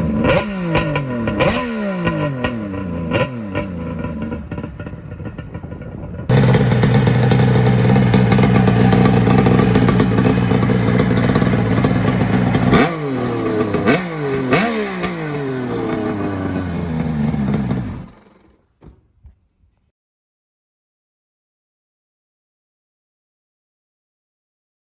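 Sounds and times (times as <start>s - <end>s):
two-stroke motorcycle engine revving: 0.0s - 18.6s.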